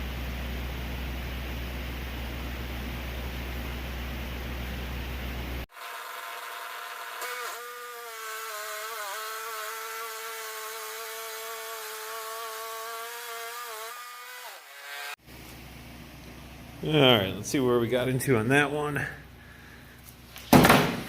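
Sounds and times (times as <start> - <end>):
bandsaw mill cutting wood: 5.7 - 15.2.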